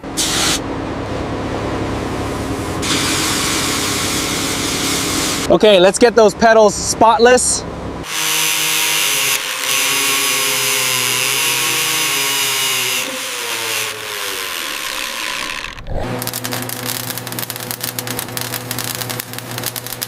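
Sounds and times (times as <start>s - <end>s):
power tool motor hum: 8.0s - 20.0s.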